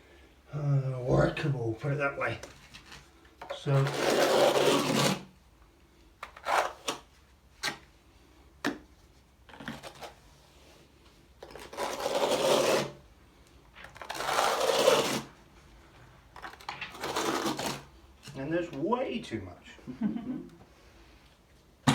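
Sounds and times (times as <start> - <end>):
trowel scraping adhesive: 3.7 - 5.3, 11.4 - 13.0, 16.9 - 17.9.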